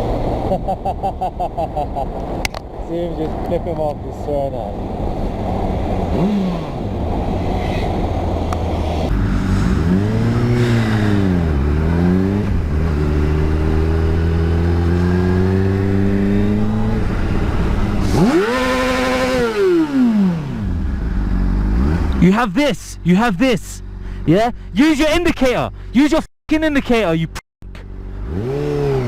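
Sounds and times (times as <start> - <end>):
wind and road noise: 0.0 - 29.0
motorcycle engine revving: 5.1 - 22.2, 27.7 - 29.0.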